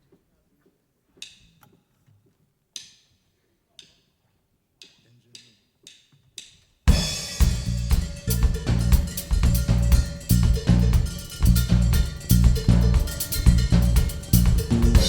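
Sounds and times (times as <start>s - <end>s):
drumstick count-in taps: 3.8s - 4.0s, 4.8s - 6.6s, 8.0s - 15.0s
band playing: 6.9s - 15.0s.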